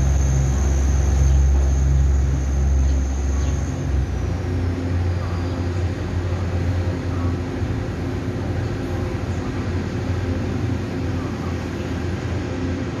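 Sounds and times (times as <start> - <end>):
train humming at platform: 0.0 - 13.0.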